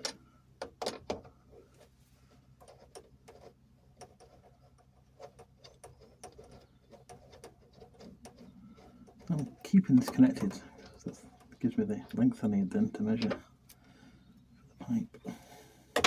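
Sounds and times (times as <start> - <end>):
metal pipework clicking and knocking: 2.6 - 12.2.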